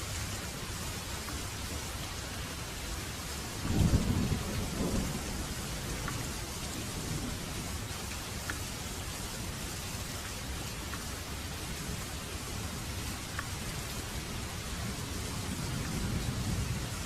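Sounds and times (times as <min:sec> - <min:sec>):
heavy rain falling: 0:00.0 - 0:17.0
thunder rumbling: 0:03.6 - 0:07.9, 0:14.8 - 0:17.0.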